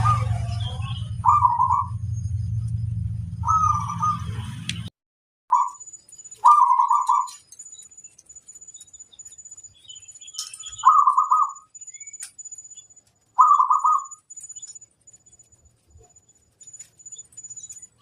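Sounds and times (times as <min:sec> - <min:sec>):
doves trilling coos: 0:00.0 - 0:02.2, 0:03.4 - 0:04.4, 0:05.5 - 0:07.8, 0:10.0 - 0:12.2, 0:13.3 - 0:14.8.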